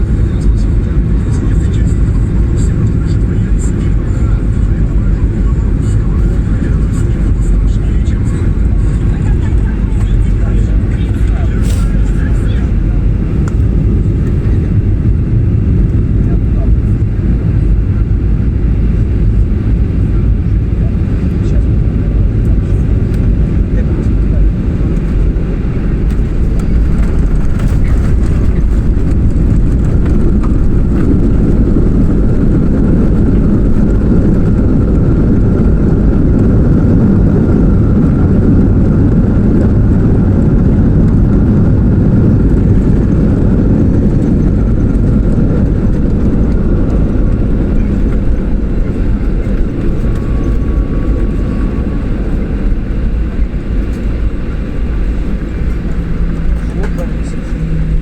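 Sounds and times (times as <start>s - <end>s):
jet engine rumble in airplane cabin: 0.0s - 58.0s
rushing air: 10.8s - 16.2s.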